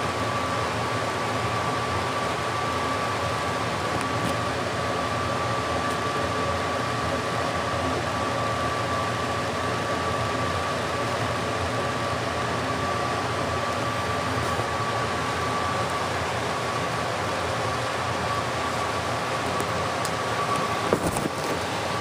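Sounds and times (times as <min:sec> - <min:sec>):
thin steady whine: 0:00.0 - 0:22.0.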